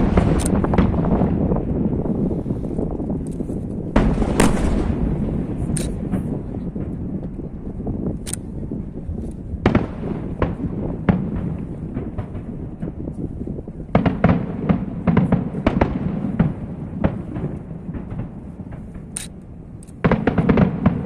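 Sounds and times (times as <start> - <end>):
low rumble: 0.0 - 13.9
fireworks bangs and crackles: 0.0 - 21.0.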